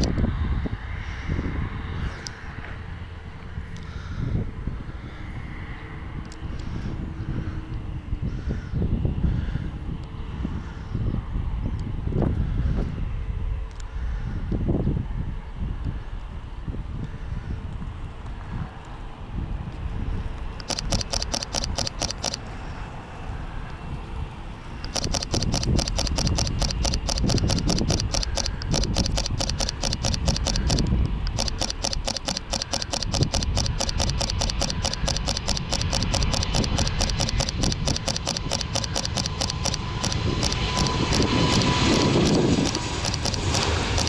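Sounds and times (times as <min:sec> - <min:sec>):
jet aircraft engine: 0:00.0 - 0:44.0
outdoor background noise: 0:15.5 - 0:44.0
camera shutter bursts: 0:20.6 - 0:22.4, 0:24.8 - 0:44.0.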